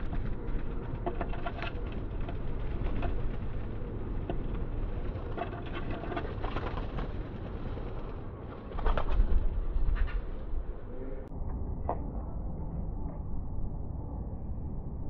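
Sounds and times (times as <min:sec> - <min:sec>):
wing flutter: 0:00.0 - 0:11.1
steady low rumble: 0:00.0 - 0:15.0.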